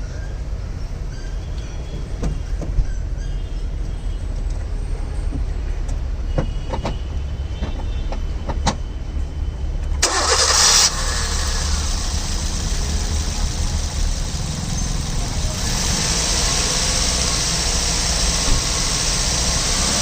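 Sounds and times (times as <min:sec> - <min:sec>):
car engine cranking: 0:10.0 - 0:20.0
car engine idling: 0:10.0 - 0:20.0.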